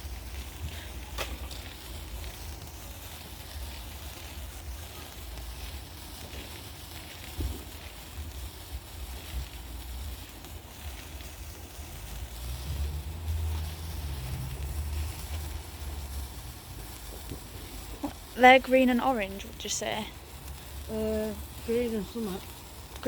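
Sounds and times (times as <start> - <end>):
distant fireworks bangs: 0.0 - 23.0
faint hiss: 0.0 - 23.0
low rumble: 11.7 - 23.0.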